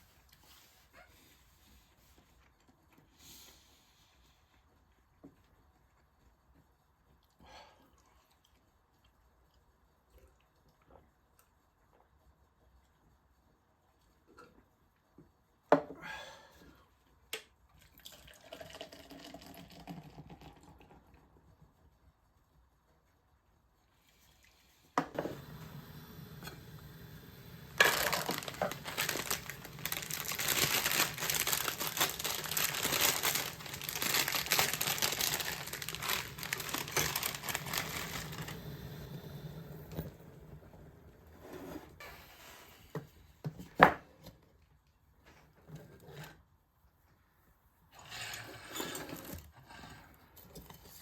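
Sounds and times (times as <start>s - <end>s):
paper crinkling and rustling: 27.6s - 39.1s.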